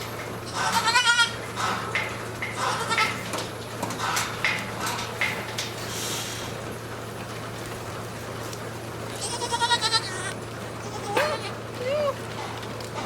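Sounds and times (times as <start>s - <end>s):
goat kid bleating: 0.5s - 1.4s, 2.6s - 3.2s, 9.2s - 12.2s.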